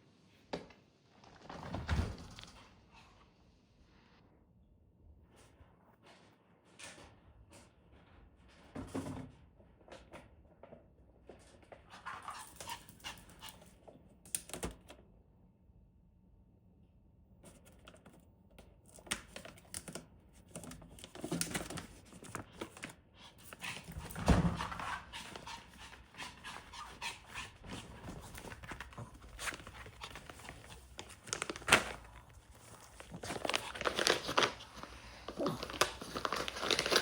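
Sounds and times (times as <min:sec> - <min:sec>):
clicks and rustles: 0:17.5 - 0:37.0
puppy panting: 0:23.3 - 0:31.0.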